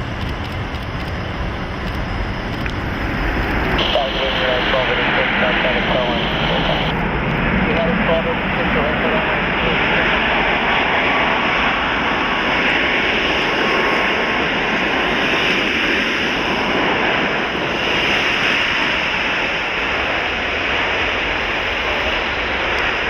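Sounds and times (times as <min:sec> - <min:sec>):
jet engines running: 0:00.0 - 0:23.0
faint high whine: 0:02.6 - 0:10.6.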